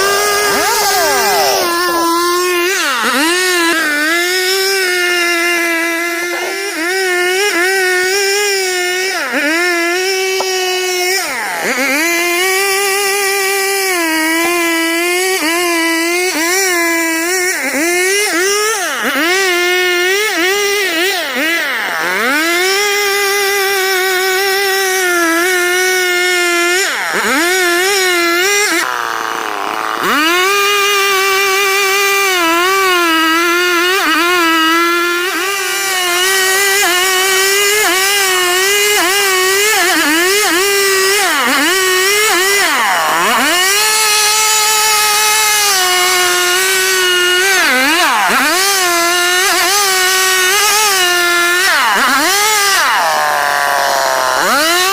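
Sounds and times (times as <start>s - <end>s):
chainsaw cutting at high revs: 0.0s - 54.9s.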